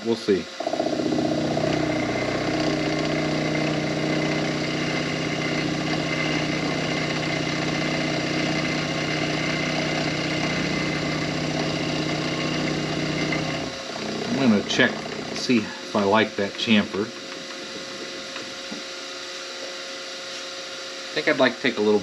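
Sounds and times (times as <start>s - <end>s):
milling machine motor hum: 0.4s - 19.8s
bit cutting aluminium: 0.6s - 15.6s.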